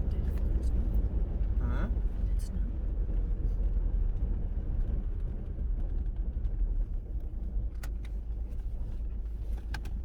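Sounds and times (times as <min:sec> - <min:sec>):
car tyres and engine rumble: 0:00.0 - 0:10.0.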